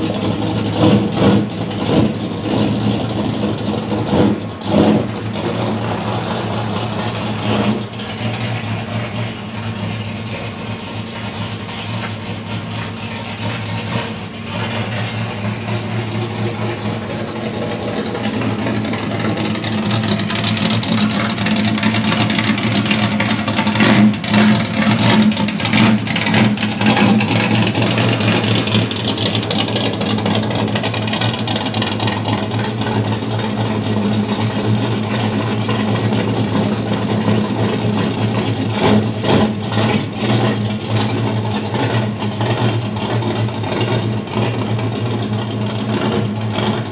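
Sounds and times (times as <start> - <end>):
car engine drone: 0.0 - 46.9
road and wind noise: 0.0 - 46.9.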